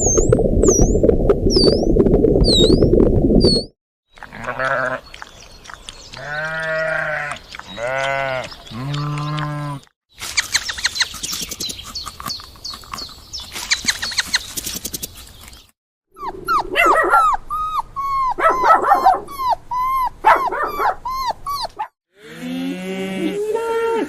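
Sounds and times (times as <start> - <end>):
goat bleating: 4.3 - 5.0, 6.2 - 9.9
quick high chirps and clicks: 10.2 - 15.7.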